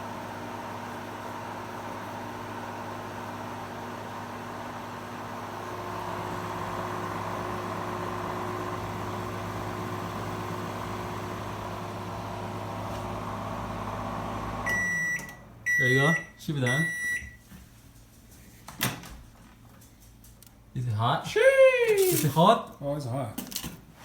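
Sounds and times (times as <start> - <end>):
microwave oven humming: 0.0 - 22.6
microwave beep: 14.6 - 17.5.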